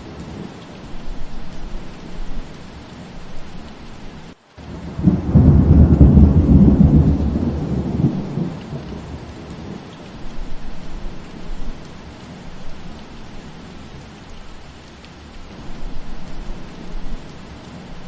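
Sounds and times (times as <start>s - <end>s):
steady rain: 0.0s - 18.0s
thunder rolling: 4.6s - 9.6s.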